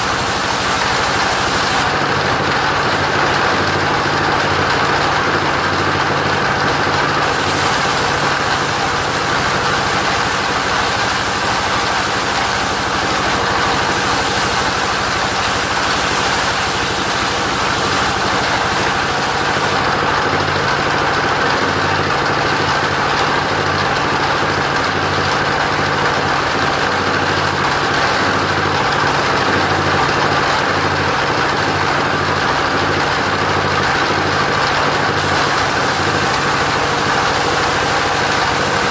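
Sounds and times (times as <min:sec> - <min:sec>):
machine hiss: 0:00.0 - 0:02.0, 0:07.2 - 0:20.0, 0:35.1 - 0:38.9
sawmill engine running: 0:00.0 - 0:38.9.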